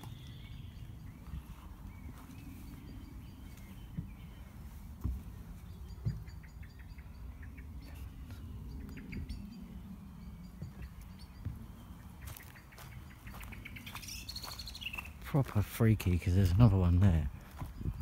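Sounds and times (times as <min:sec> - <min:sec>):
small birds chirping: 0:00.0 - 0:18.0
steady low rumble: 0:00.0 - 0:18.0
dull thumps of handheld camera: 0:03.8 - 0:06.4.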